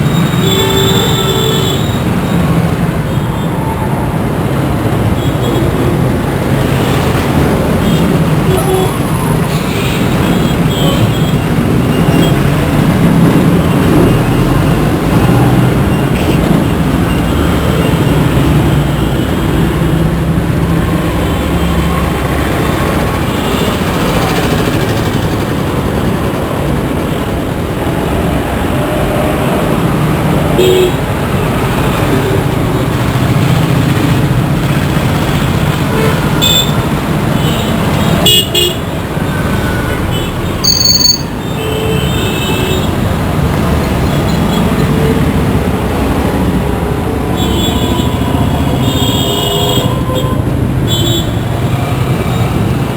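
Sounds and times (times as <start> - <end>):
traffic engines rumbling: 0.0 - 52.9
vehicle horns honking: 30.6 - 31.0, 37.4 - 43.0.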